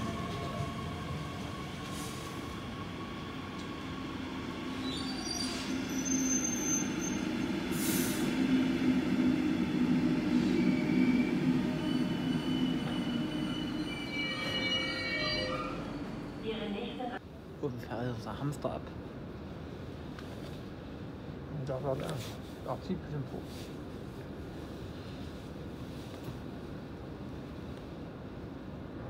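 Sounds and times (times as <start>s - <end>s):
high squealing from running gear: 11.8s - 16.2s.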